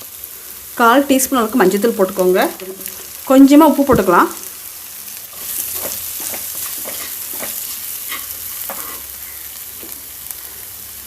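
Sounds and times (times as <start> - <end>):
vegetables sizzling in oil: 0.0 - 11.0
spoon scraping a pan: 5.3 - 10.0.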